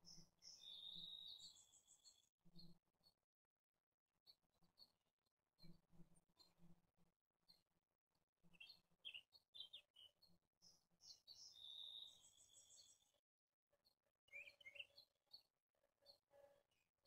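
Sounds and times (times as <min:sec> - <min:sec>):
faint bird chirps: 0:00.0 - 0:02.8, 0:08.6 - 0:13.2, 0:14.3 - 0:16.6.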